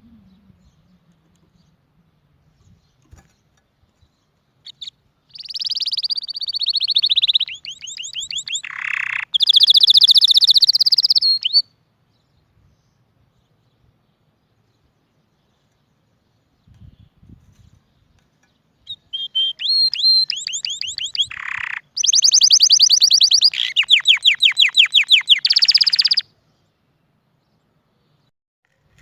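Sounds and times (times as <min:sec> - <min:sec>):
canary singing rapid trills: 0:04.6 - 0:11.6, 0:18.9 - 0:26.3.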